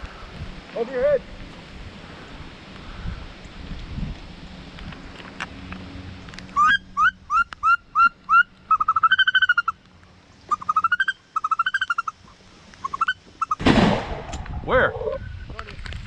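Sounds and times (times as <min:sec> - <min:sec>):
wood duck squealing: 0:06.6 - 0:09.8, 0:10.5 - 0:12.2, 0:12.8 - 0:13.6.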